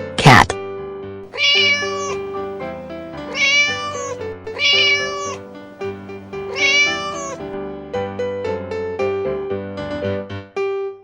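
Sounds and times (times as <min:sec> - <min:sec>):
cat meowing: 0:01.3 - 0:07.5
light background music: 0:01.3 - 0:09.2.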